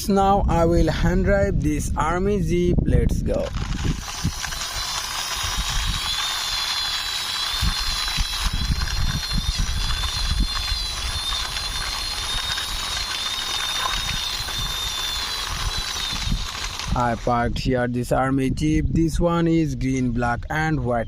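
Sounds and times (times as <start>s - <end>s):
high-pitched whine: 3.2s - 17.6s
toy wheels rumbling and scraping: 3.3s - 17.3s.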